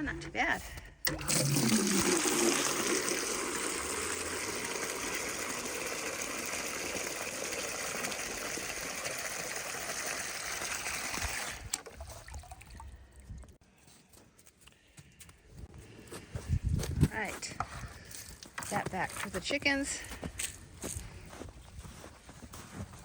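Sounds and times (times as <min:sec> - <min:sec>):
water running from hydrant: 0:01.0 - 0:12.8.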